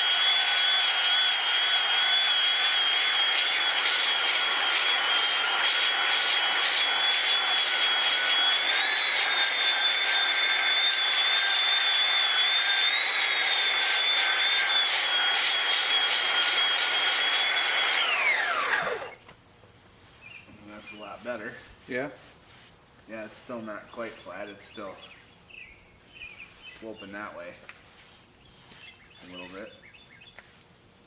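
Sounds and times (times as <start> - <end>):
electric sander whining on wood: 0.0 - 19.2.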